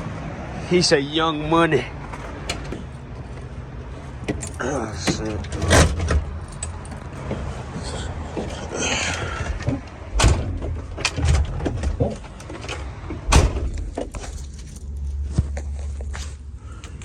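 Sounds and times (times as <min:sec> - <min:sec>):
heavy door thumps: 0:09.6 - 0:12.3, 0:13.2 - 0:14.2.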